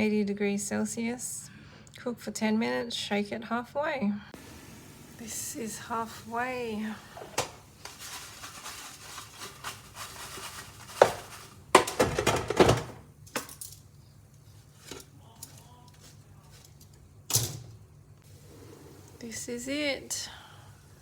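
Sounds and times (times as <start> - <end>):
potato chips rattling in basket: 7.8 - 12.5.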